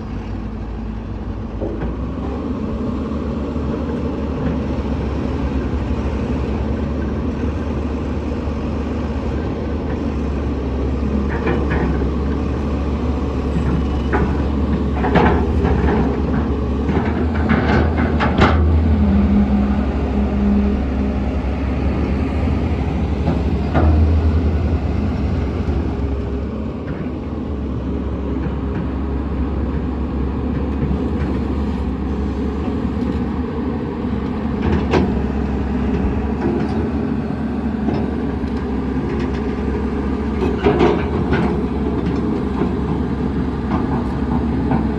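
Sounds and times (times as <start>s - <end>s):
heavy diesel engine running: 0.0s - 44.9s
metallic clanks and knocks: 13.6s - 19.5s.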